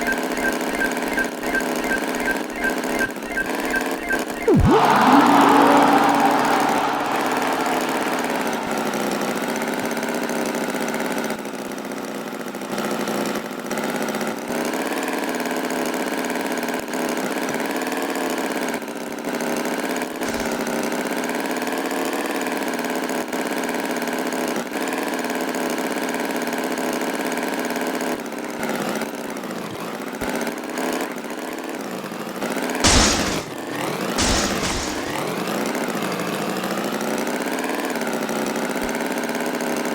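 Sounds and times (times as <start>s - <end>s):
short loud noises: 4.0s - 9.8s, 32.8s - 33.6s, 34.2s - 35.2s.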